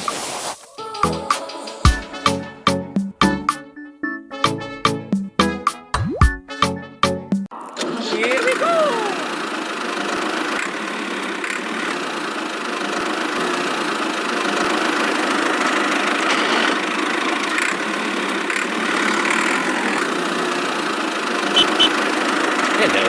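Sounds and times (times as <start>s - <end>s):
small motor running: 15.3s - 20.7s.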